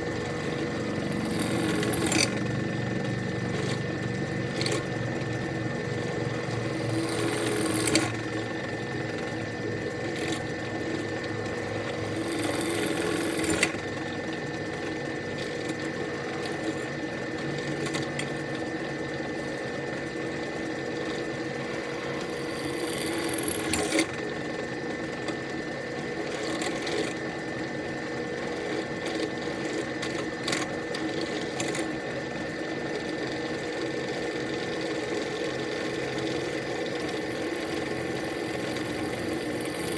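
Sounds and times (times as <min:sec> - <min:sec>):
electric drill drilling metal: 0:00.0 - 0:02.4, 0:06.0 - 0:08.6, 0:11.2 - 0:13.8, 0:21.5 - 0:24.0, 0:34.6 - 0:39.9.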